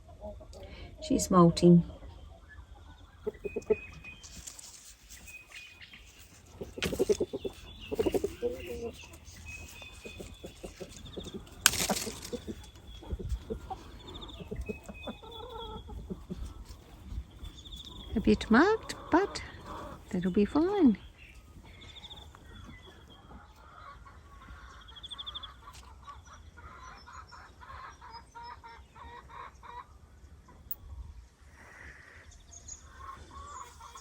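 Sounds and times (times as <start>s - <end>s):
hens clucking: 0.0s - 30.6s, 32.8s - 34.0s
small birds chirping: 0.3s - 34.0s.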